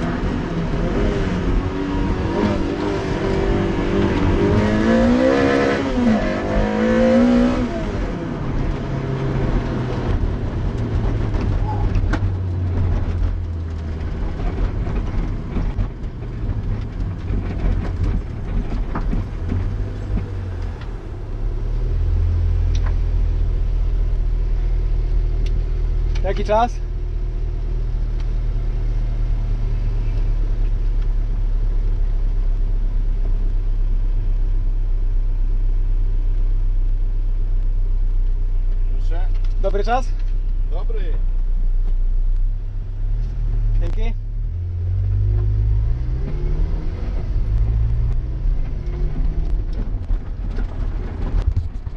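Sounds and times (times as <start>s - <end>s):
gravel ticking under tyres: 7.6s - 51.9s
car engine idling: 8.0s - 45.8s.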